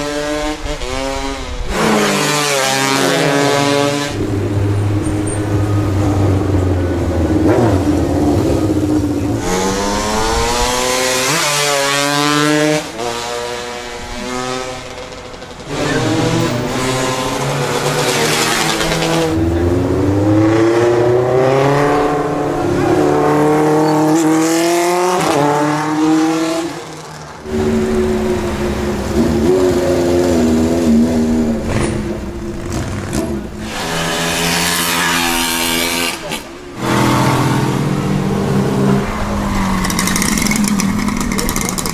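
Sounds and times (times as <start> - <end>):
motorcycle engine accelerating: 0.0 - 41.9.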